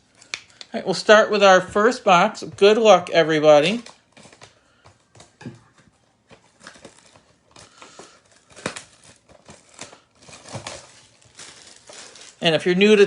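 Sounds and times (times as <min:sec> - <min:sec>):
wrapper crinkling and tearing: 0:03.4 - 0:05.4, 0:06.3 - 0:13.0.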